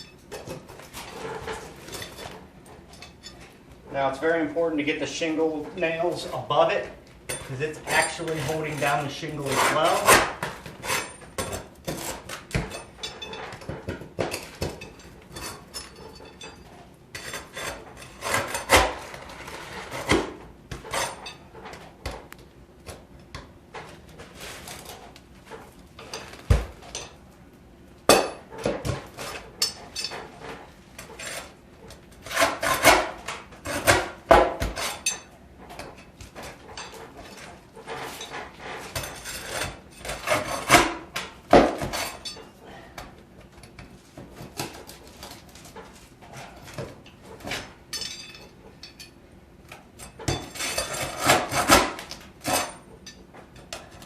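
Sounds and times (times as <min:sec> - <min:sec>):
pry bar scraping shingles: 0:17.1 - 0:21.8, 0:28.6 - 0:42.5, 0:49.7 - 0:52.8
sharp metal clinks and knocks: 0:47.9 - 0:49.2.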